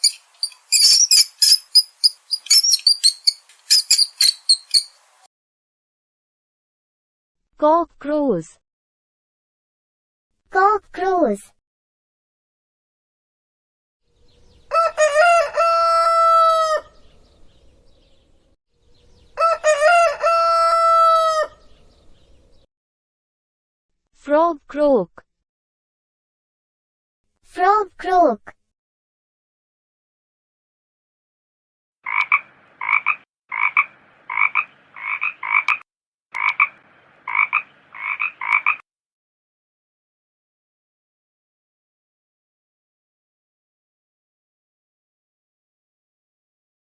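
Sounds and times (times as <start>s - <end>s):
rooster crowing: 14.6s - 17.0s, 19.2s - 21.7s
frog croaking: 32.1s - 35.8s, 36.4s - 38.8s.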